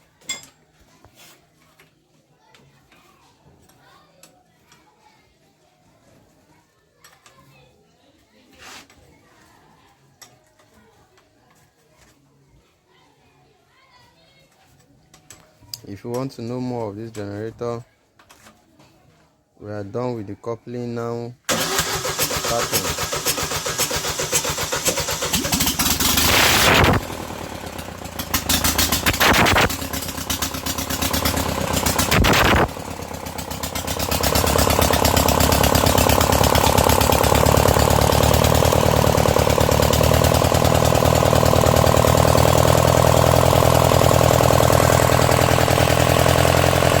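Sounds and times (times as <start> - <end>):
diesel generator engine starting: 21.5 - 47.0.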